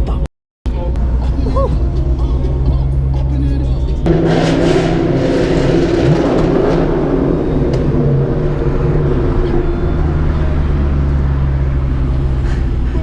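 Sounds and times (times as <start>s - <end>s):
loud car engine and exhaust revving: 0.8s - 13.0s.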